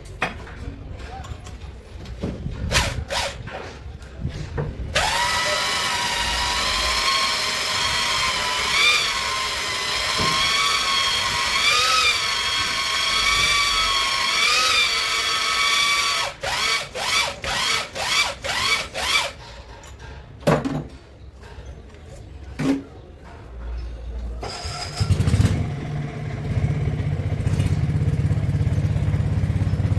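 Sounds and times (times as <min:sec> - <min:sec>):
power drill whine: 0:05.0 - 0:19.4.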